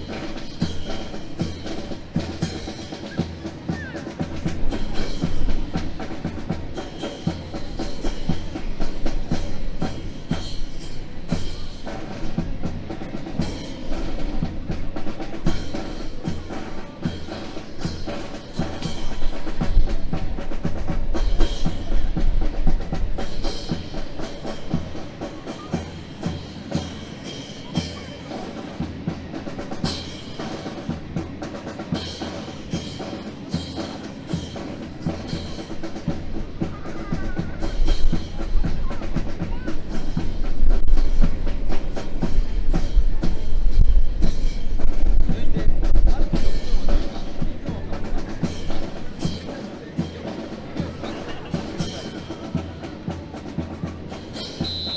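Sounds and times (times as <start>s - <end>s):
drum-led music: 0.0s - 54.9s
wind rumble on microphone: 40.4s - 47.7s.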